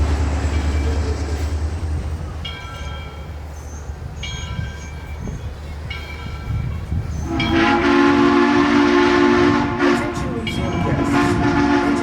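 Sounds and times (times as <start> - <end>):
train rumbling: 0.0 - 12.0
locomotive horn blasts: 7.2 - 12.0.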